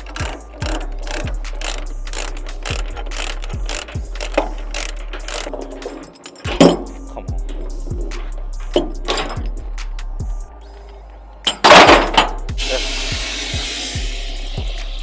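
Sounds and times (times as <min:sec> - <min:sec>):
low diesel hum: 0:00.0 - 0:06.0
chains rattling: 0:00.0 - 0:09.7
ratchet binders ratcheting: 0:00.0 - 0:09.7
loud metal clang: 0:06.5 - 0:07.1, 0:11.5 - 0:14.1.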